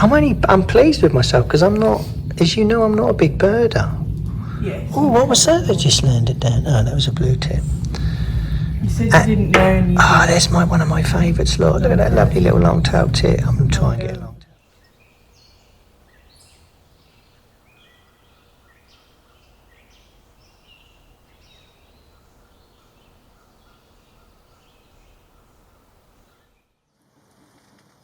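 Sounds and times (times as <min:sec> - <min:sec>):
low background rumble: 0:00.0 - 0:26.4
small songbirds calling: 0:07.0 - 0:26.8.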